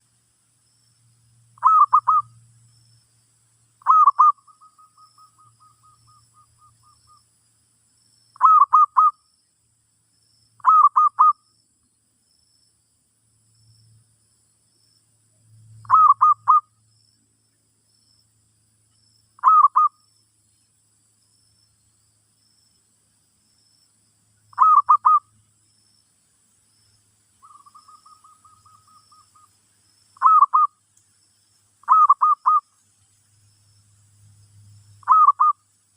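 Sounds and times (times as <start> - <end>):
dove cooing: 1.6 - 2.3, 3.8 - 4.6, 19.4 - 19.9, 24.6 - 25.2, 30.2 - 30.7, 31.9 - 32.6, 35.0 - 35.6.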